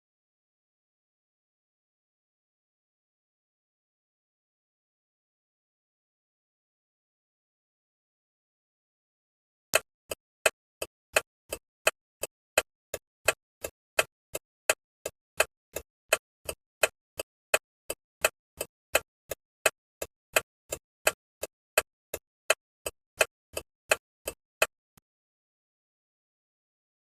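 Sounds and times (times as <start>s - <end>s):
turn signal flasher ticking: 9.8s - 24.8s.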